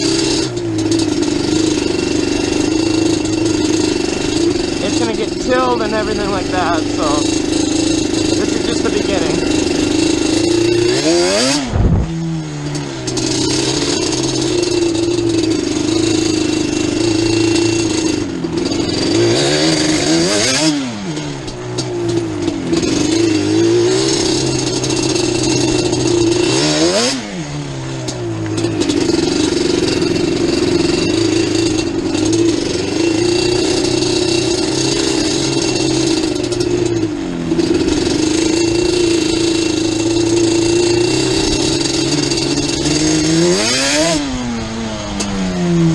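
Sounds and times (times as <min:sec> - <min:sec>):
two-stroke quad engine revving: 0:00.0 - 0:45.9.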